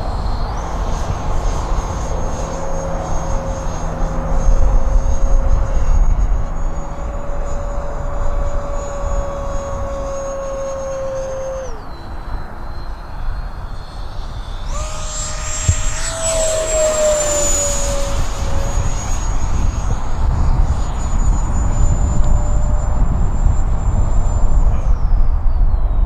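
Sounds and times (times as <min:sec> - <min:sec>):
model jet fan whining: 0:00.0 - 0:26.0.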